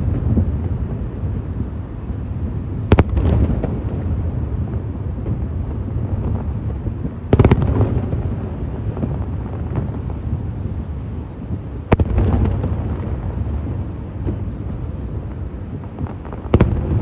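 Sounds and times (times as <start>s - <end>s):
fireworks crackling: 0.0s - 17.0s
low fireworks rumble: 0.0s - 17.0s.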